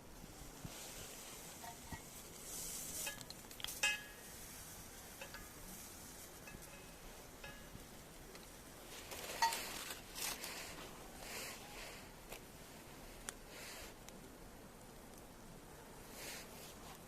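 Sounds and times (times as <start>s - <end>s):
clams sizzling on a grill: 0.0s - 17.0s
light metallic clinks: 3.0s - 4.5s, 5.2s - 8.0s.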